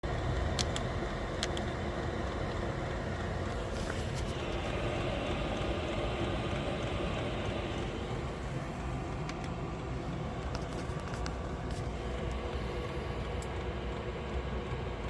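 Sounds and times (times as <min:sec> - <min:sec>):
air heater roaring: 0:00.0 - 0:15.0
sharp clicks: 0:00.5 - 0:01.7, 0:09.1 - 0:09.7.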